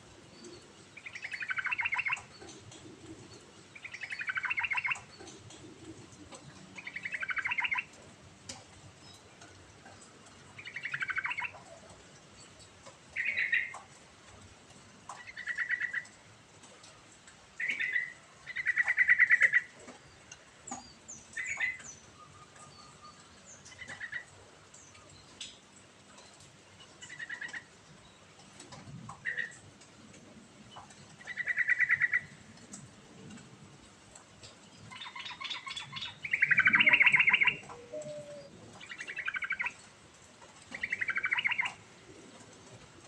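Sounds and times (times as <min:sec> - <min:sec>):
bulbul singing trilled phrases: 0:34.9 - 0:39.8.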